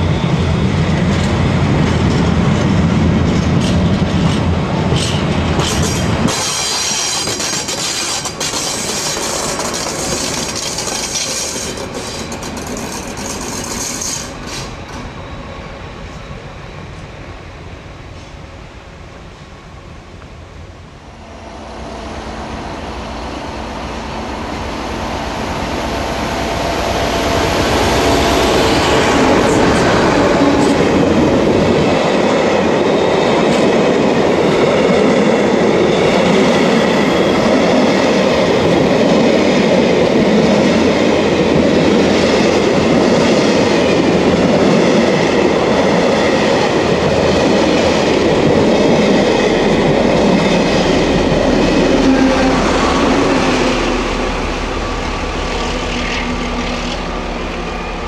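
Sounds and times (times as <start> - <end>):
diesel locomotive: 0.0 - 58.0
wheels clattering over rail joints: 3.3 - 15.1.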